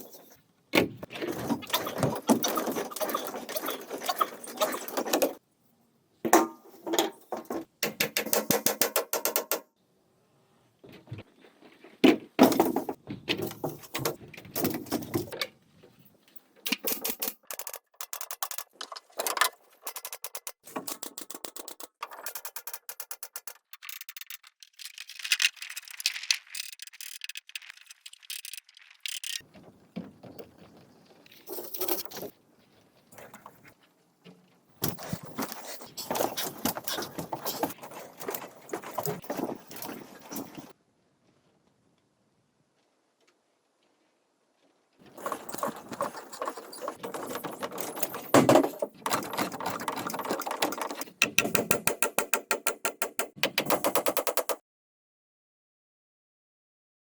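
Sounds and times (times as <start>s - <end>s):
bamboo poles clattering: 0.0s - 5.4s, 6.2s - 9.6s, 10.8s - 32.4s, 33.1s - 40.8s, 45.0s - 52.2s.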